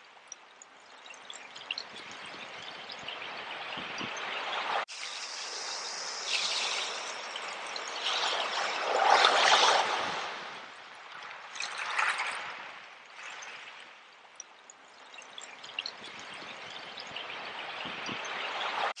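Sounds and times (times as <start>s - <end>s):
ocean waves washing in: 2.0s - 13.8s, 16.2s - 19.0s.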